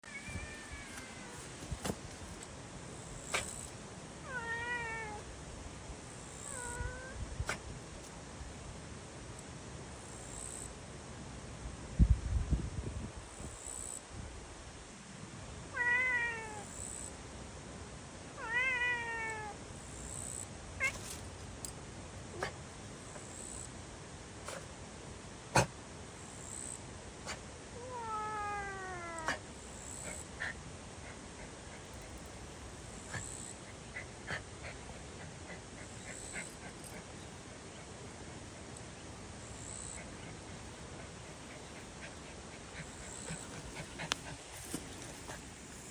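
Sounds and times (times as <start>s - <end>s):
cat meowing: 0.0s - 1.6s, 4.2s - 5.2s, 6.5s - 7.2s, 15.8s - 16.7s, 18.4s - 19.6s, 27.8s - 29.4s
steady background hiss: 0.0s - 45.9s.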